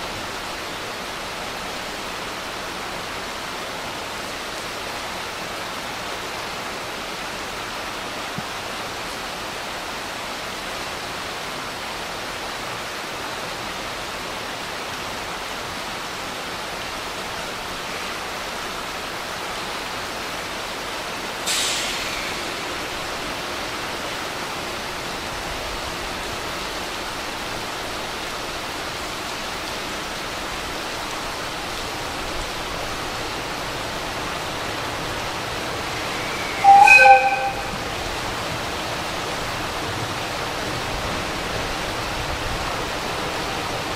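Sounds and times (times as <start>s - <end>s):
heavy rain falling: 0.0s - 43.9s
sudden sharp hiss: 21.4s - 26.4s, 34.0s - 38.4s.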